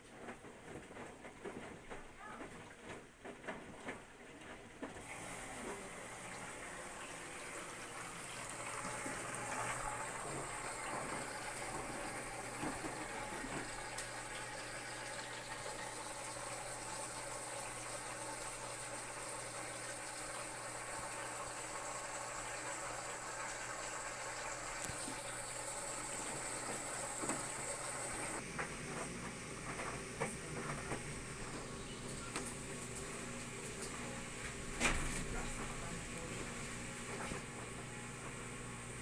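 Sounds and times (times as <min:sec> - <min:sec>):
water pouring into washing machine: 0:04.9 - 0:28.4.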